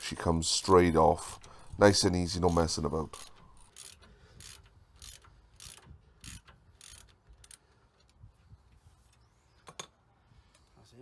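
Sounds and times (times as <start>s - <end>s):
hand tools scraping and clicking: 0.6s - 8.2s.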